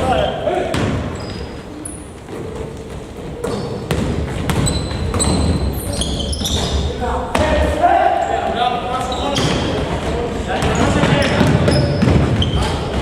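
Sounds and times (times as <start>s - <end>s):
sneakers squeaking: 0.0s - 13.0s
basketball bouncing on gym floor: 0.7s - 1.5s, 2.2s - 7.6s, 9.0s - 13.0s.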